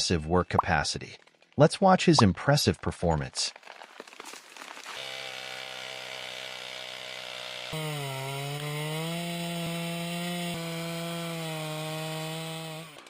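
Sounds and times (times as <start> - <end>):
chainsaw engine running: 4.6 - 13.0.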